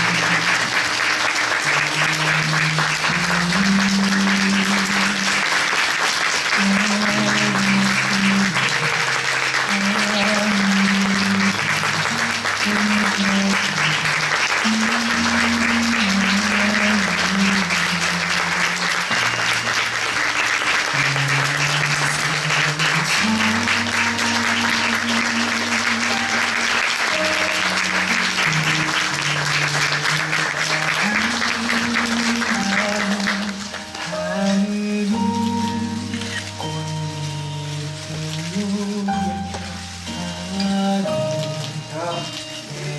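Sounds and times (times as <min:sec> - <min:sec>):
audience applauding: 0:00.0 - 0:42.9
music with long low notes: 0:00.0 - 0:42.9.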